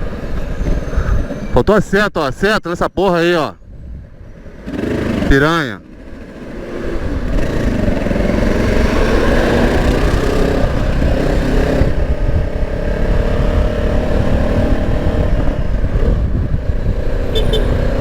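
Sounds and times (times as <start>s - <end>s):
motorcycle engine running: 4.6s - 18.0s.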